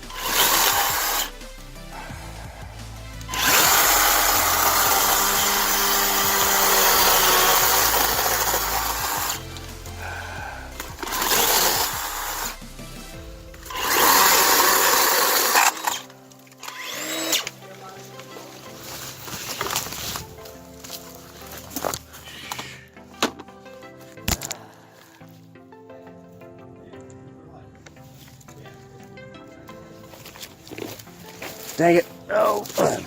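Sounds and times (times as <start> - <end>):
electric chainsaw cutting stems: 0.0 - 17.7, 18.7 - 20.5.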